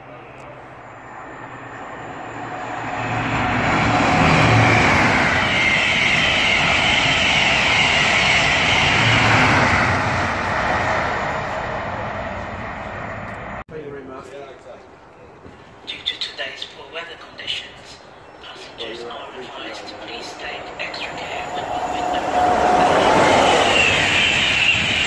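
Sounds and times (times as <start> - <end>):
train rushing past: 0.5 - 13.6, 18.4 - 25.0.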